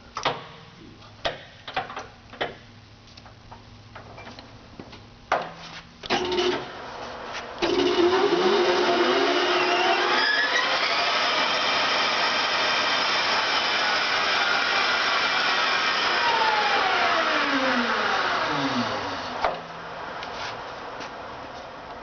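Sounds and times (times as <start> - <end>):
lathe running: 7.6 - 19.4.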